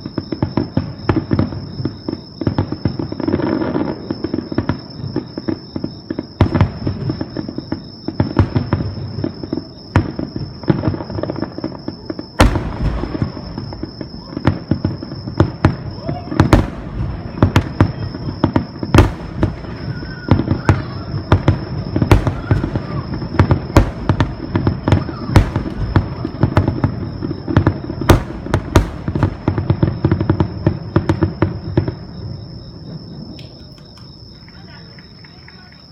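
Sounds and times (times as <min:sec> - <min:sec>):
fireworks crackling pops and bangs: 0:00.0 - 0:35.9
firework boom with rumbling echo: 0:08.2 - 0:33.4.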